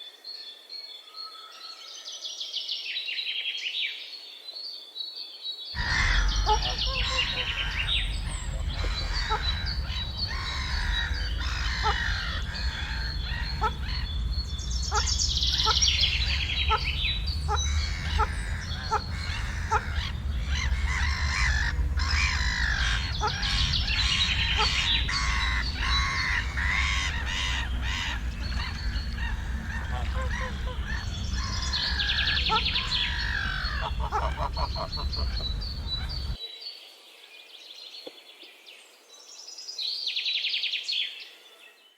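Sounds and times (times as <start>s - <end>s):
wild birds chirping and singing: 0.0s - 41.9s
steady low rumble: 5.8s - 36.4s.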